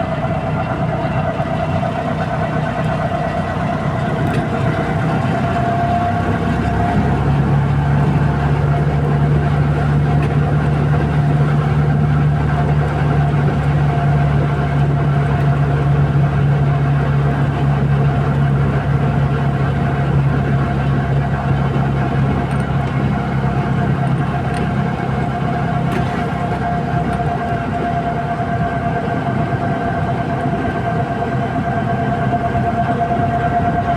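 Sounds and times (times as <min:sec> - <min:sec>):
vehicle running hum: 0:00.0 - 0:33.9.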